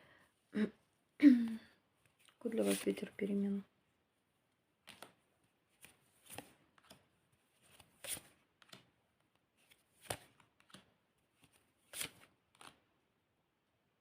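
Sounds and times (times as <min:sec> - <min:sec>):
cards swishing and tapping: 0:02.0 - 0:03.0, 0:04.8 - 0:09.0, 0:09.6 - 0:12.8.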